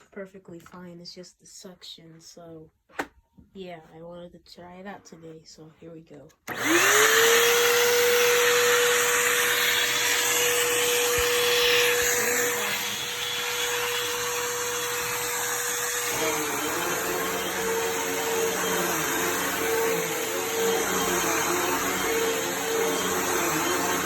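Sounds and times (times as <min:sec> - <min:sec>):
vacuum cleaner motor whine: 0:06.5 - 0:24.0.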